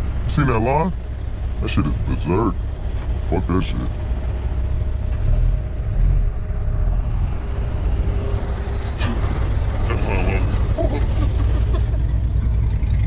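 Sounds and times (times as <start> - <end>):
car engine idling low: 0.0 - 13.0.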